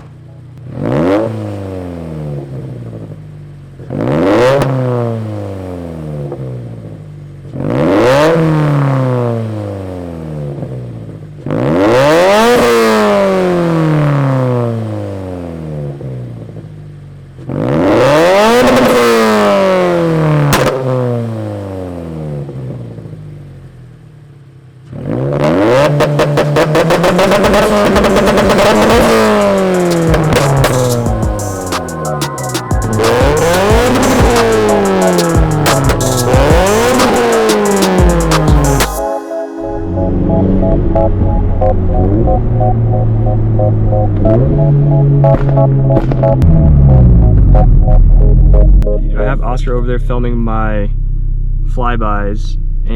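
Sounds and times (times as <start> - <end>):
car engine revving: 0.0 - 16.8, 17.4 - 23.8, 24.8 - 39.0, 39.8 - 52.9.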